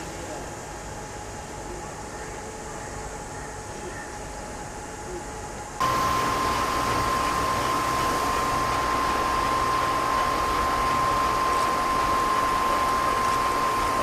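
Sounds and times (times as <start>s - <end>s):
high whine: 5.8s - 14.0s
washing machine hiss: 5.8s - 14.0s.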